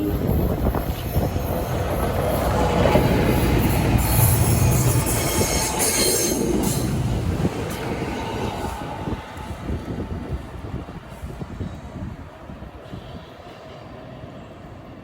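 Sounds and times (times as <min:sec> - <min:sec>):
train wheels rumbling on rails: 0:00.0 - 0:15.0
high-pitched wheel squeal: 0:03.6 - 0:06.9.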